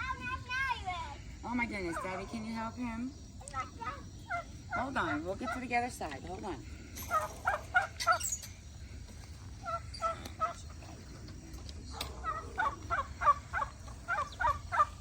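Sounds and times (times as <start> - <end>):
poultry calling: 3.4 - 15.0.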